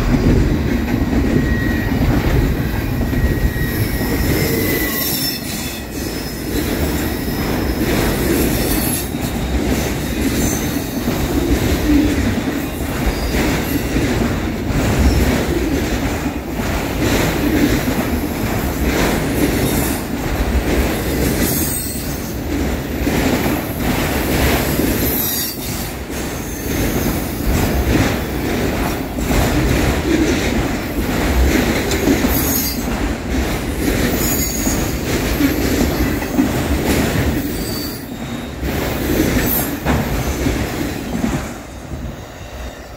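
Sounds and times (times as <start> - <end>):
freight train rolling past: 0.0 - 42.9.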